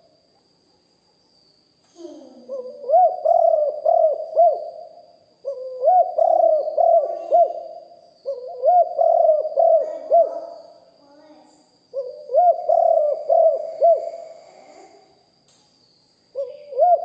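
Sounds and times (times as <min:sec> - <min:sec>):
dove cooing: 0:02.4 - 0:10.7, 0:11.9 - 0:14.8, 0:16.4 - 0:17.0.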